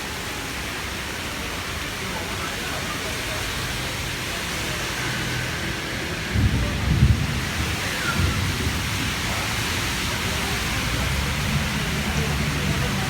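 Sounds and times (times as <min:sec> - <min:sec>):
torrential rain pouring: 0:00.0 - 0:13.0
low rumbling surges: 0:05.0 - 0:13.0.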